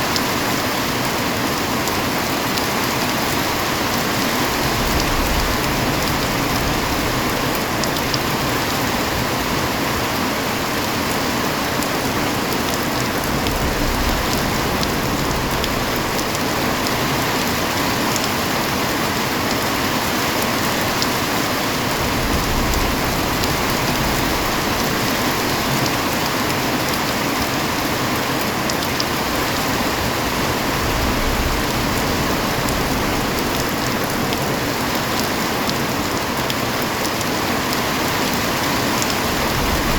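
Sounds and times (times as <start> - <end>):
heavy rain falling: 0.0 - 39.9
sharp raindrop ticks: 4.8 - 8.5, 12.6 - 18.4.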